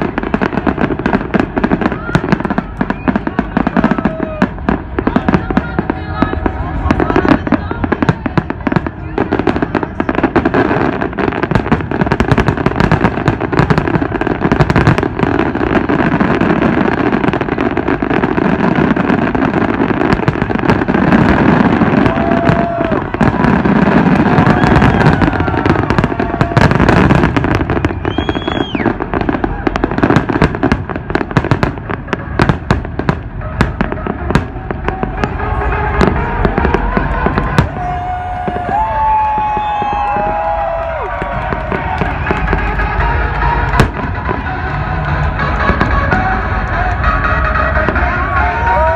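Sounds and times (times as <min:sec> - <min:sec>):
fireworks bangs and crackles: 0:00.0 - 0:48.9
fireworks whistling: 0:00.0 - 0:48.9.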